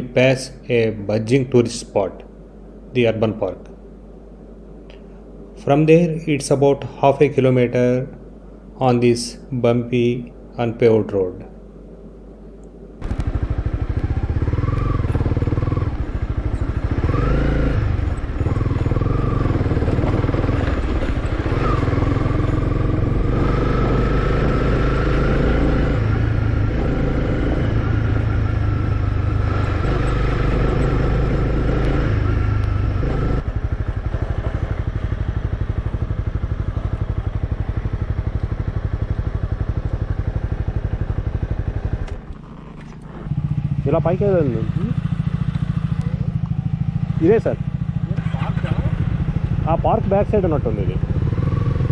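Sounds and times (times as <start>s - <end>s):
motorcycle engine revving: 13.0s - 51.9s.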